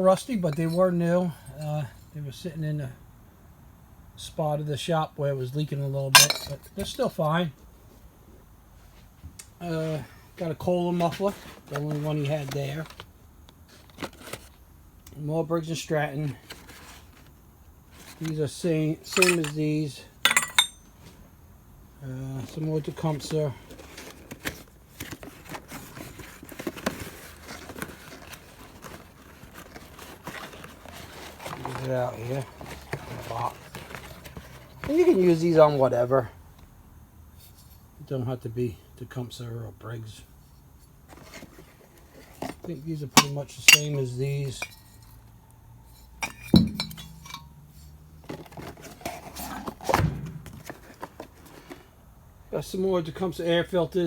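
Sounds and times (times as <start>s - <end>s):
packaging rustling: 13.7s - 14.6s, 23.7s - 34.9s
light clinks of engine parts: 19.1s - 21.0s, 43.1s - 45.3s, 45.9s - 48.0s.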